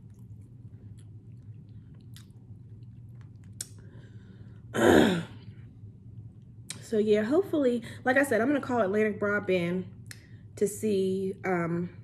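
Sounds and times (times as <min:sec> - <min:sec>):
person chewing chicken: 0:00.0 - 0:04.0
low hum: 0:00.0 - 0:12.0.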